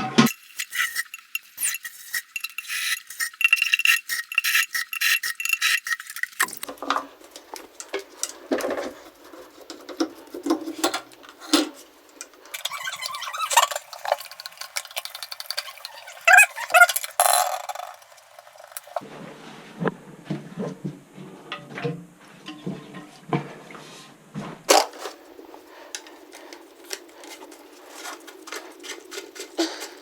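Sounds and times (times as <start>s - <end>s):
small hard objects clinking: 0.3s - 9.7s, 12.1s - 19.0s, 24.7s - 30.0s.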